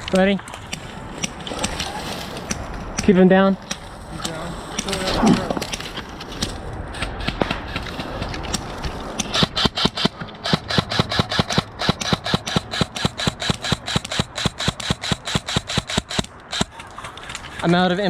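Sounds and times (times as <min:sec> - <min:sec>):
airsoft rifle rapid shots: 0:09.2 - 0:17.6.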